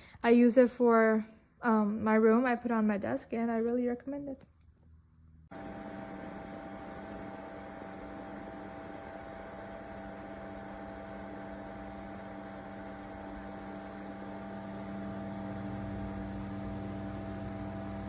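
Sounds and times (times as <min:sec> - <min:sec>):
small fan humming: 0:05.5 - 0:18.0.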